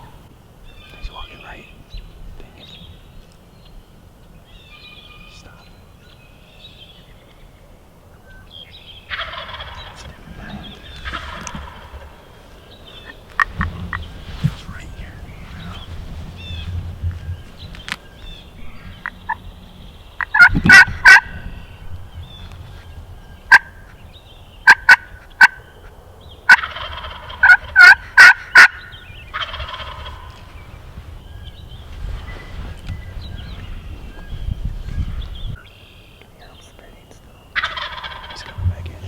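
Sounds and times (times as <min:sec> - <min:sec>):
turkey gobble: 0:09.1 - 0:12.2, 0:20.2 - 0:21.4, 0:23.5 - 0:23.8, 0:24.6 - 0:25.6, 0:26.5 - 0:30.4, 0:37.6 - 0:38.6
turkey clucks: 0:09.1 - 0:12.3, 0:18.6 - 0:19.5, 0:20.1 - 0:21.4, 0:23.5 - 0:23.8, 0:24.6 - 0:25.6, 0:26.5 - 0:30.4, 0:37.5 - 0:39.0.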